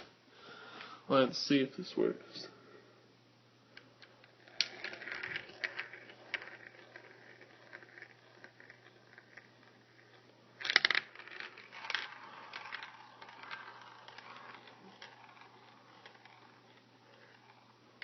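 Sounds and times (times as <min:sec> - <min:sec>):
marble rolling and knocking: 0:03.8 - 0:18.0.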